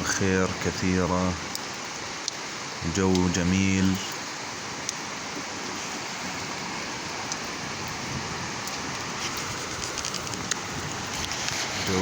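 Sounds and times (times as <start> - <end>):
heavy rain hissing: 0.0 - 12.0
faint raindrop ticks: 1.4 - 5.5, 7.2 - 8.0, 8.6 - 12.0.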